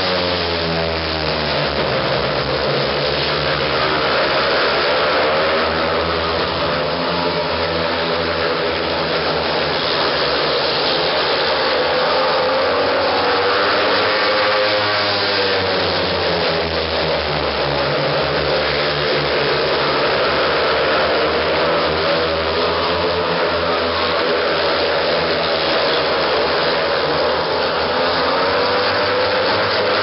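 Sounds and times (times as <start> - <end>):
motorbike engines racing: 0.0 - 30.0.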